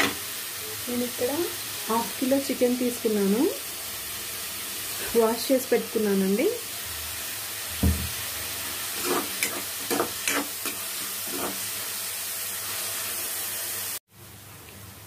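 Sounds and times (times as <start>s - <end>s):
onions sizzling in hot oil: 0.0s - 15.0s
low thump: 7.8s - 8.1s
steel spoon scraping pan: 8.7s - 11.7s.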